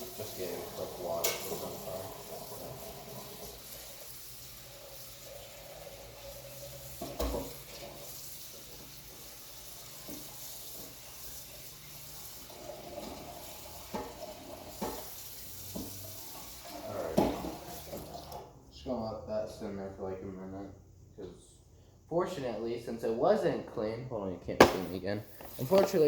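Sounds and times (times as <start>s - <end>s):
tap water running: 0.0s - 18.5s, 24.6s - 26.0s
knocks on a pan: 24.6s - 25.0s.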